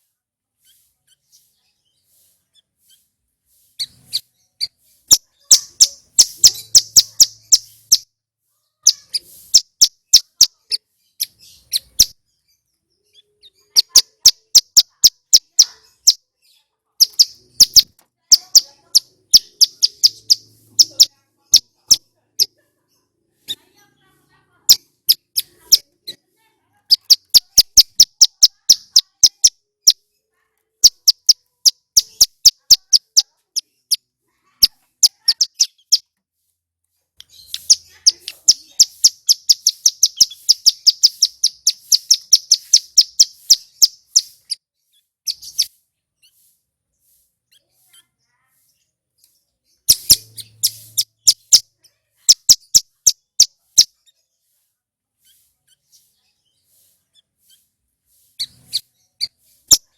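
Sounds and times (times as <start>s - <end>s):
bird singing high chip notes: 3.8s - 8.1s, 17.0s - 22.5s, 26.9s - 30.0s, 37.2s - 44.6s, 49.7s - 51.7s
bird trill: 3.8s - 8.1s, 8.8s - 22.6s, 26.9s - 30.1s, 30.8s - 36.1s, 37.2s - 46.5s, 49.7s - 54.3s.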